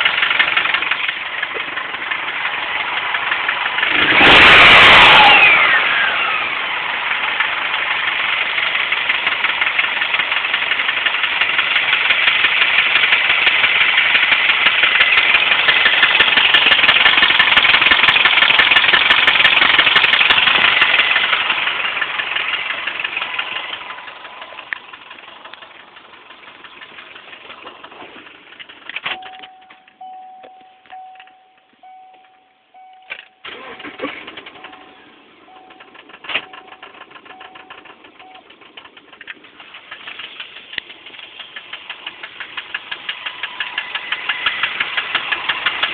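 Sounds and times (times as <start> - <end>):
engine idling rough: 0.0 - 45.9
electronic beep: 29.1 - 38.4
loud rapid clicking: 37.9 - 45.9.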